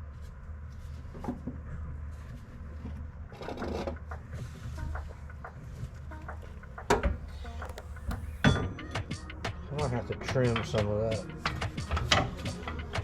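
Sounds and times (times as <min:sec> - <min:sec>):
metal knocks and clicks: 0:05.0 - 0:08.5.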